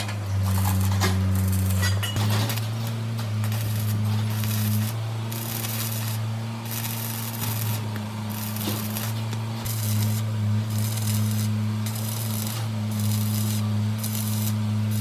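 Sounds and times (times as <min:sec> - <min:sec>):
low electric hum: 0:00.0 - 0:15.0
hissing strokes: 0:03.4 - 0:15.0.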